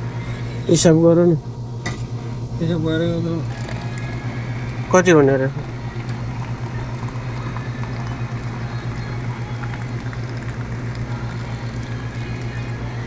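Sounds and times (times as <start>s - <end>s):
pulsing low mechanical hum: 0.0s - 13.0s.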